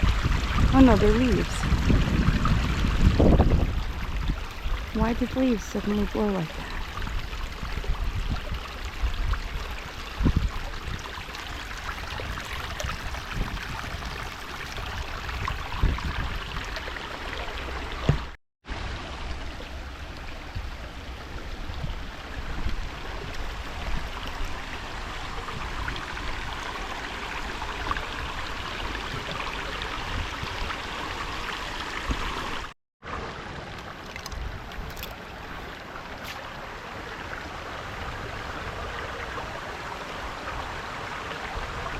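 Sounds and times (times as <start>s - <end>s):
creek water babbling over rocks: 0.0s - 41.9s.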